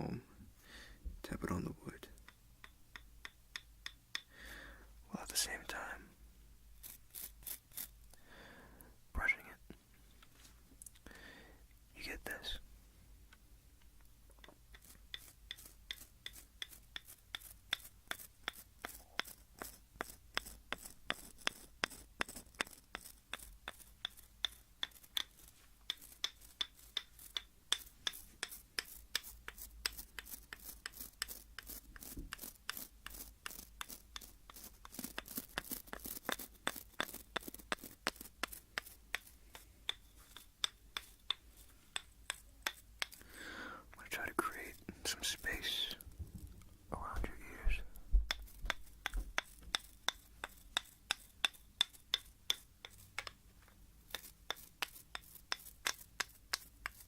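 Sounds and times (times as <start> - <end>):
comb tapping on wood: 2.1 - 4.3, 14.3 - 43.4, 44.2 - 57.0.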